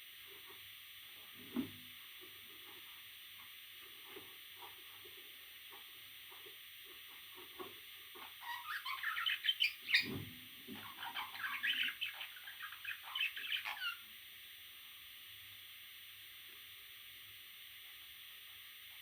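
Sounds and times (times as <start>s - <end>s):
parrot chicks squawking: 8.2s - 14.0s.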